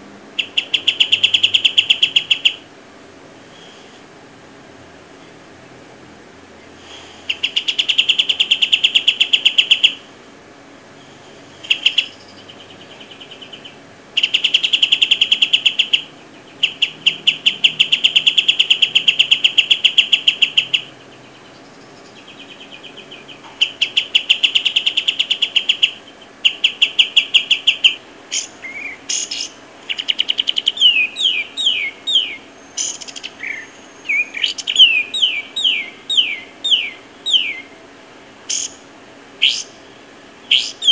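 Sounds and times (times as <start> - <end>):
bird singing trills: 0.4 - 2.8, 6.6 - 10.1, 11.0 - 40.9.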